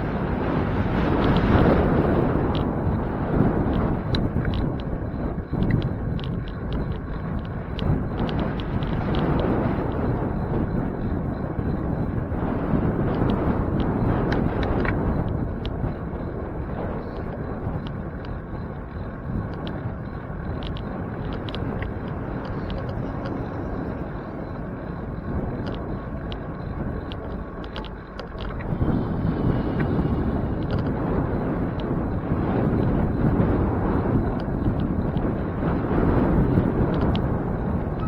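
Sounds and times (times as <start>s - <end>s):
traffic noise: 0.0s - 38.0s
wind rumble: 0.0s - 38.0s
small clicks: 3.6s - 10.1s, 16.6s - 31.1s, 31.7s - 38.0s.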